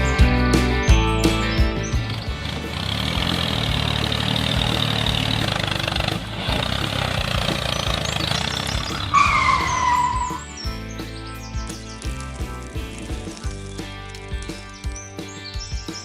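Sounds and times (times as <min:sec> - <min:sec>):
steady engine noise: 0:01.7 - 0:10.2
falling squeal: 0:08.8 - 0:10.5.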